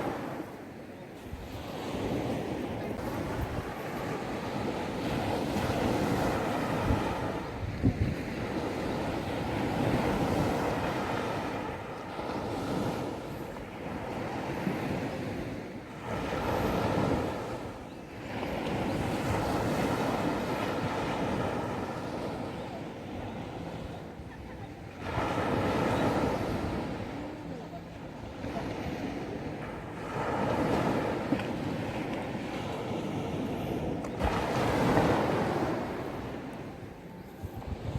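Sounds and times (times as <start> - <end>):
wind buffeting microphone: 0.0 - 23.5, 28.4 - 37.9
sea waves breaking on beach: 0.0 - 37.9.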